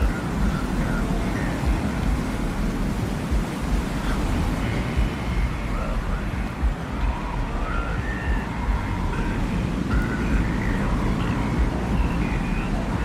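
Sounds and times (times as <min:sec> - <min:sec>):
deep rumble of wind: 0:00.0 - 0:13.0
faint high whistling tones: 0:03.9 - 0:13.0.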